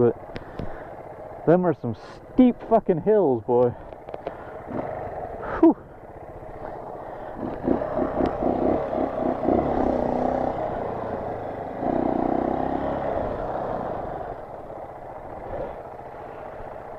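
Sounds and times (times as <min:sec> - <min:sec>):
dirt bike engine revving: 0:04.6 - 0:05.7, 0:06.6 - 0:16.6.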